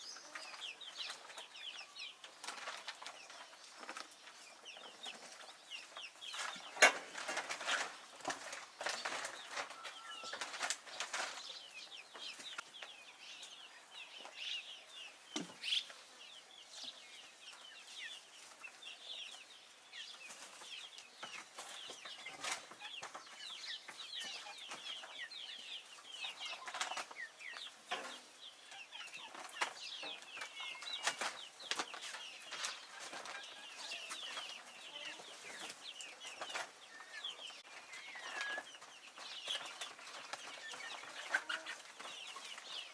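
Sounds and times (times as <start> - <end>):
chicks peeping: 0.0 - 42.9.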